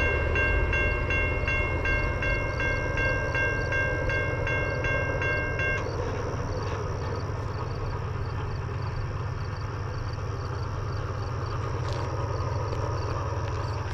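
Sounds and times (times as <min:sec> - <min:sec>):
level-crossing bell ringing: 0:00.0 - 0:06.5
crickets chirping faintly: 0:00.0 - 0:13.9
steady low rumble: 0:00.0 - 0:13.9.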